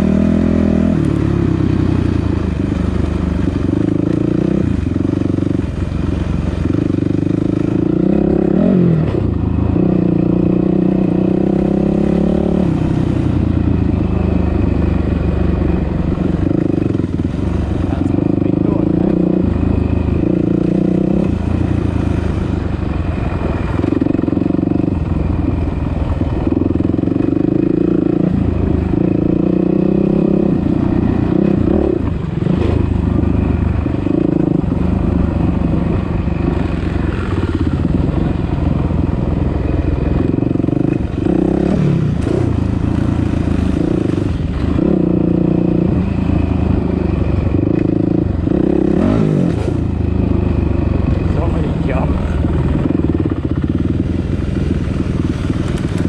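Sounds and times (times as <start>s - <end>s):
dirt bike engine revving: 6.5s - 14.1s, 15.8s - 22.8s, 40.0s - 56.0s.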